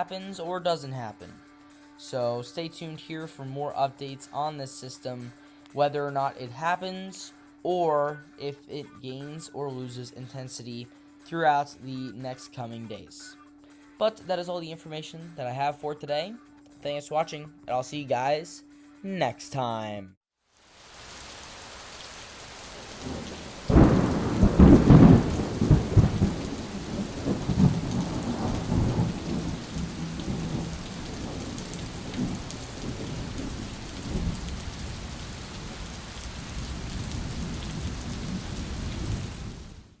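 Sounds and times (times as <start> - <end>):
steady rain: 20.6 - 40.0
thunder crack and rumble: 22.9 - 39.9.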